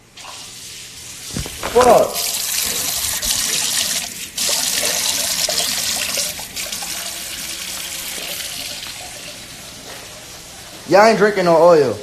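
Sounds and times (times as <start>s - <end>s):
tap water running into sink: 1.3s - 9.8s.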